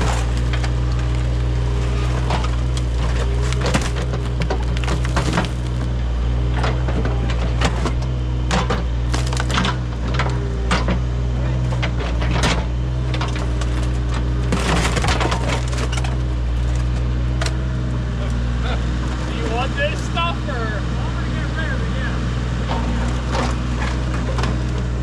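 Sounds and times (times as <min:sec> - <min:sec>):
wood cracking and splintering: 0:00.0 - 0:18.4
digging machine engine running: 0:00.0 - 0:25.0.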